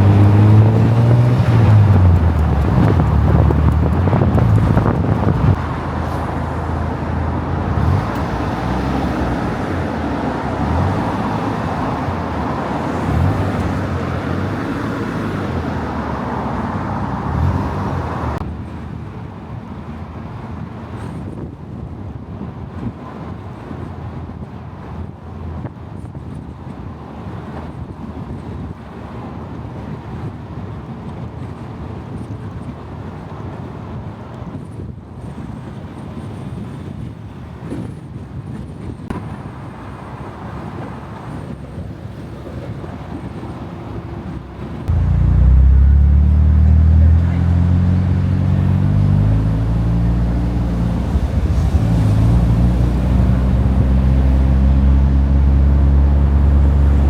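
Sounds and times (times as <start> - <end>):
deep sports car engine: 0.0 - 18.6, 43.0 - 57.0
car road noise: 0.0 - 21.2, 39.1 - 57.0.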